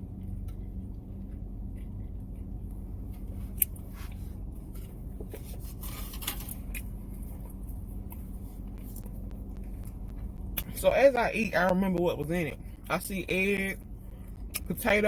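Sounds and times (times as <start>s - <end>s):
chewing food: 0.0s - 5.5s, 6.2s - 10.8s
steady low hum: 0.0s - 15.0s.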